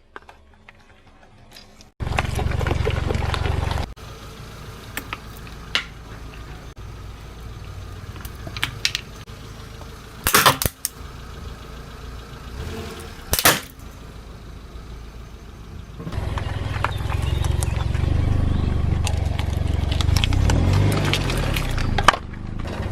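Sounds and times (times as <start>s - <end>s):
objects crunching under car tyre: 0.0s - 4.0s, 16.0s - 22.9s
car engine running: 2.0s - 22.9s.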